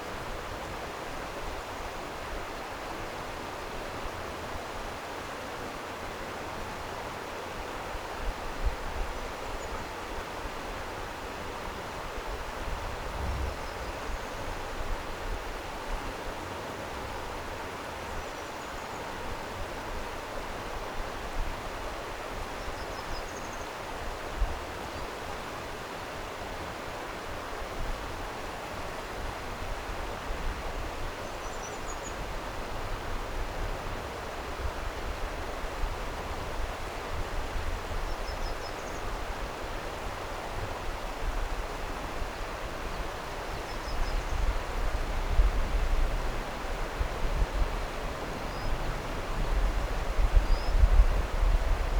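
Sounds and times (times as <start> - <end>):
stream water rushing: 23.7 - 51.9.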